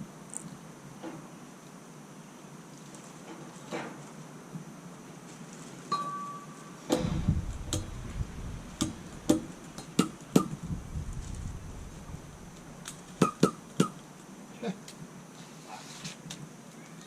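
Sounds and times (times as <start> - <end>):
sharp clicks and knocks: 6.9 - 8.2
low rumble: 6.9 - 13.2.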